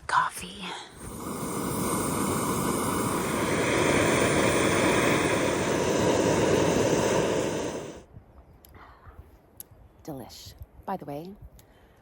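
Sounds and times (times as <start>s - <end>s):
camp stove burner roaring: 1.0s - 8.0s.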